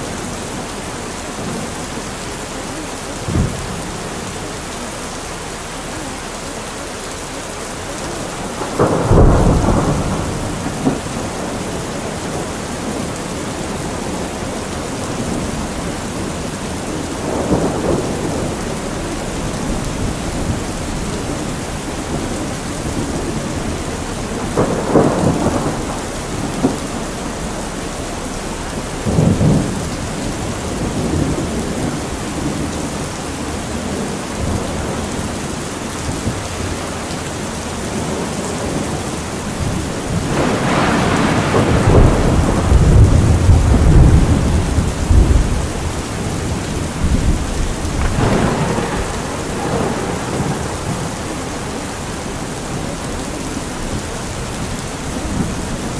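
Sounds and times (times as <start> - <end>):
steady rain: 0.0 - 55.9
rolling thunder: 7.8 - 55.9.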